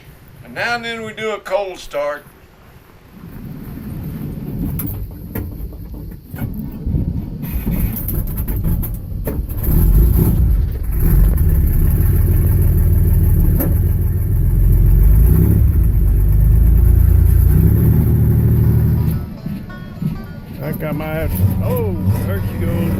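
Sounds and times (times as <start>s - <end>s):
old engine cold starting: 7.4s - 22.9s.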